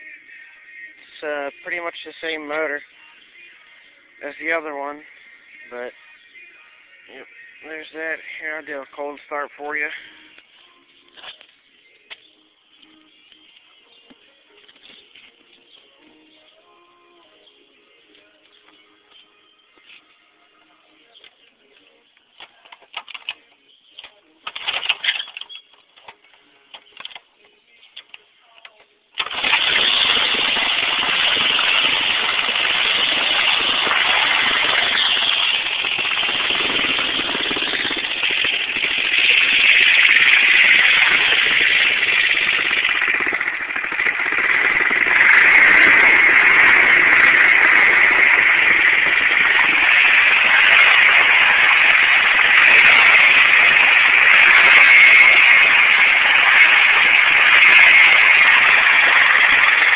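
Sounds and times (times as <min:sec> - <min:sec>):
engine clicks: 0:28.0 - 0:32.2, 0:32.8 - 0:59.9
small engine starting and running: 0:29.2 - 0:59.9.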